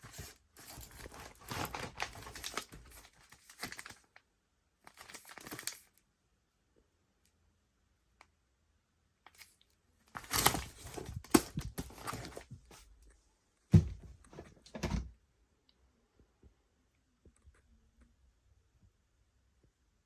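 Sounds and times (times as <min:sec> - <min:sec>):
packaging crinkling: 0:00.0 - 0:04.1, 0:04.9 - 0:05.9, 0:10.1 - 0:12.5
thumps: 0:13.7 - 0:15.1.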